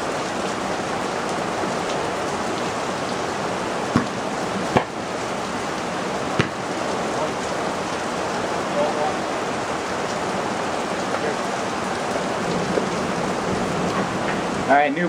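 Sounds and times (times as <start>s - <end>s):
heavy rain falling: 0.0s - 15.0s
sharp thuds: 3.9s - 5.0s, 6.4s - 6.8s.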